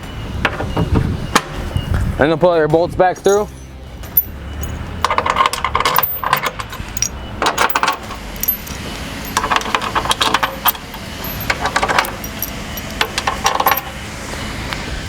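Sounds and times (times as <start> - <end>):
bolts clinking and rattling: 3.2 - 14.0.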